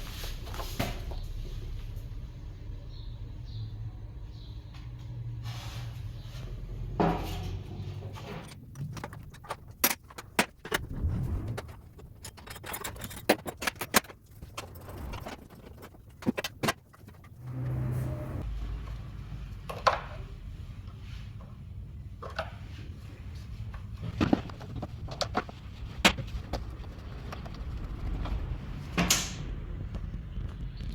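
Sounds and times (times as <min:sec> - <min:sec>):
metal tools clinking: 0:12.2 - 0:15.4.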